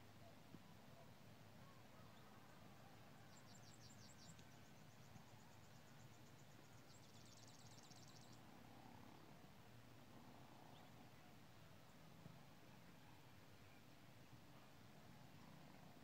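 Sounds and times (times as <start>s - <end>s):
songbird trill: 0.0s - 9.2s.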